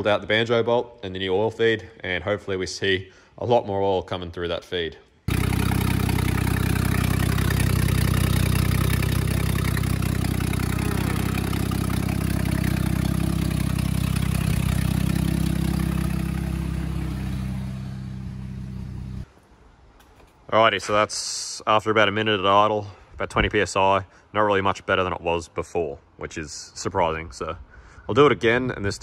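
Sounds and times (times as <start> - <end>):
car engine idling: 5.3 - 19.2.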